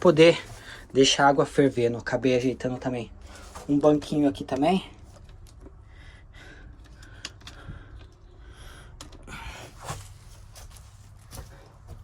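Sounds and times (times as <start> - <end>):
breaths: 0.4 - 0.9, 5.7 - 10.3.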